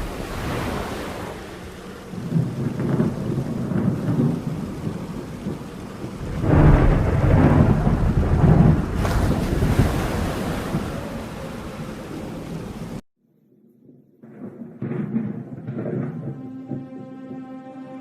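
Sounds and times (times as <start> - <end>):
steady rain: 0.0 - 13.0
thunder rumbling: 0.0 - 13.0, 14.2 - 17.5.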